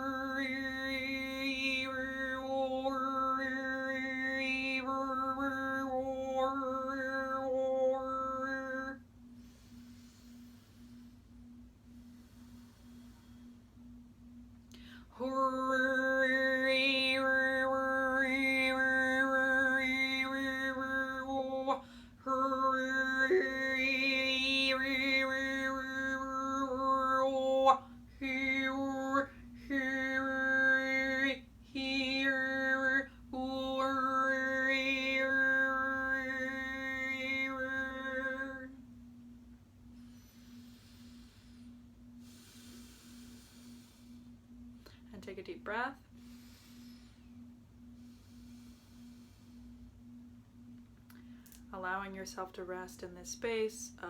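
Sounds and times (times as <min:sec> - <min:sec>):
woman overtone singing: 0:00.0 - 0:09.0, 0:15.1 - 0:38.8
steady pure drone tone: 0:00.0 - 0:54.0
short breaths: 0:09.4 - 0:11.3, 0:40.0 - 0:45.0, 0:46.1 - 0:49.9.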